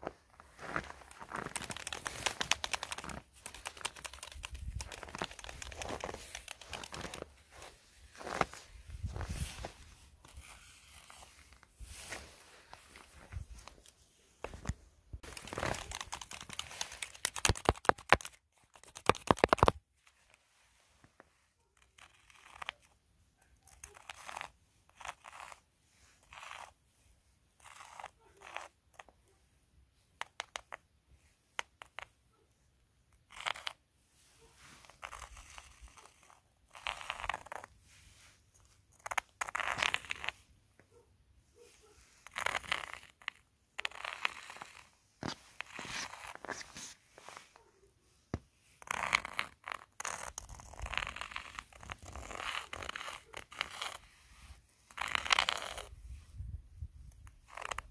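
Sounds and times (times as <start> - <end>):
footsteps crunching in snow: 0.0 - 4.0, 4.7 - 15.9, 45.2 - 47.6.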